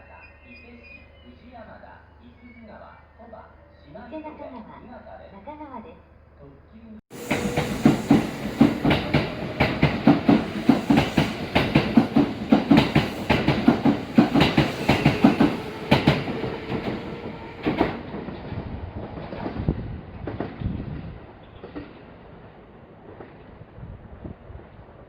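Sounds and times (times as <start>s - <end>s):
train wheels clattering over joints: 7.2s - 18.5s.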